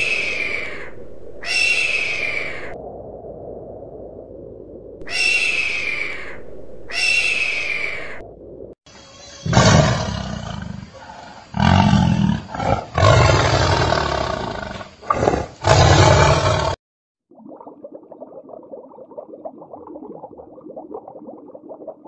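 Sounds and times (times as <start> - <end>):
lion roaring and grunting: 9.5 - 16.8.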